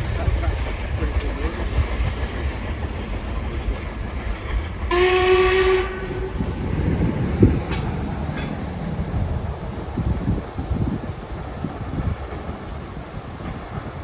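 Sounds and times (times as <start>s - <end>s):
low rumble: 0.0s - 14.0s
steam locomotive whistle: 4.9s - 8.6s.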